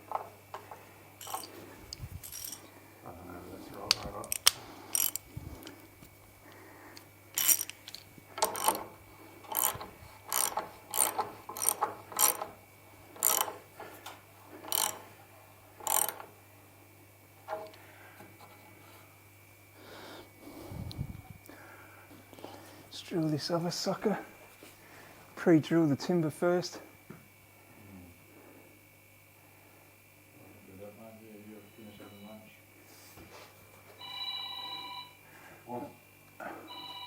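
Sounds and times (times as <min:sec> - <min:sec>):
socket ratchet clicking: 0:01.2 - 0:02.6, 0:04.2 - 0:05.7, 0:07.3 - 0:08.8, 0:09.5 - 0:12.4, 0:13.2 - 0:13.6, 0:14.7 - 0:15.0, 0:15.8 - 0:16.2.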